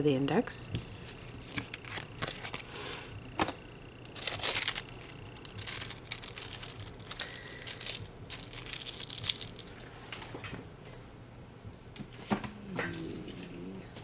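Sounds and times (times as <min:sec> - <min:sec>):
crinkling and rustling: 0:00.8 - 0:02.7, 0:03.3 - 0:10.6
small clicks and crackles: 0:04.0 - 0:10.6.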